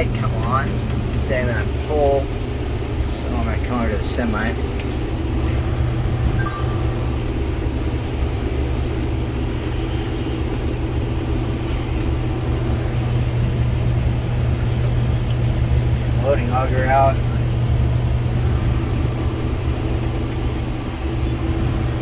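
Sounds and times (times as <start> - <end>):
combine harvester engine drone: 0.0 - 22.0.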